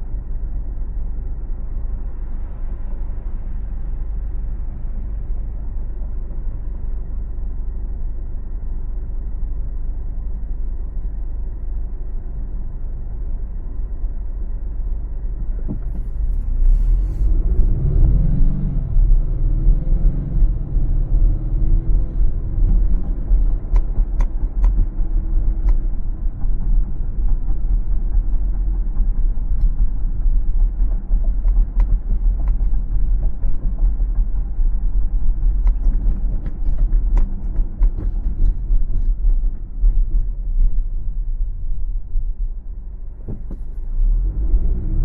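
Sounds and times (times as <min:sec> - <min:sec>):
car tyre and engine rumble: 0:00.0 - 0:45.0
sharp clicks and creaks: 0:20.6 - 0:41.2.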